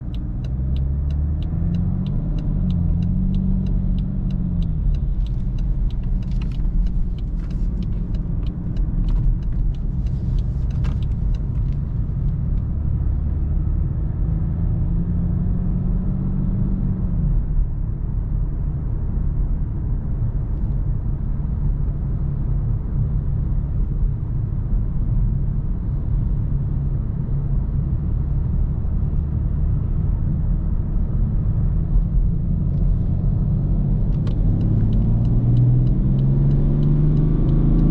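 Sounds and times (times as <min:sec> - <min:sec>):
light rapid ticks: 0:00.0 - 0:12.9, 0:34.0 - 0:37.9
tyre and road rumble: 0:00.0 - 0:14.2
diesel engine rumble in cabin: 0:00.0 - 0:15.8, 0:16.5 - 0:37.9.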